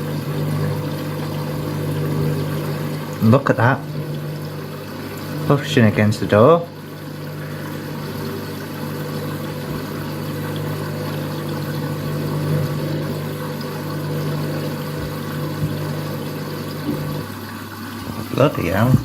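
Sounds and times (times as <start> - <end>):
washing machine motor hum: 0.0 - 19.0.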